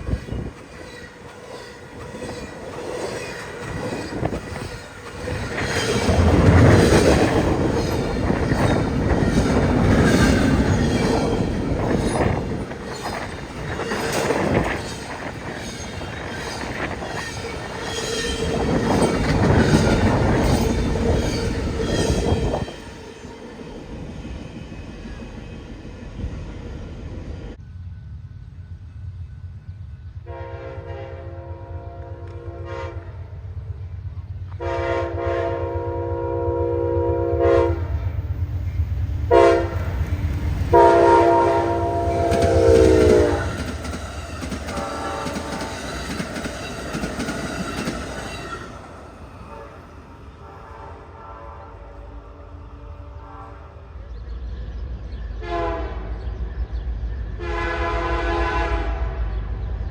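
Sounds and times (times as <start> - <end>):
train rumble: 0.0 - 59.9
locomotive air horn blasts: 30.3 - 33.2, 34.6 - 37.9, 39.3 - 39.8, 40.7 - 43.6, 44.7 - 45.7, 49.4 - 53.8, 55.4 - 56.1, 57.4 - 59.2.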